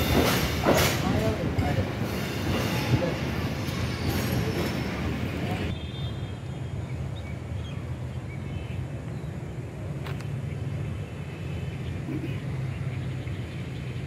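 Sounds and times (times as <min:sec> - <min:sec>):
train rumbling: 0:00.0 - 0:05.7.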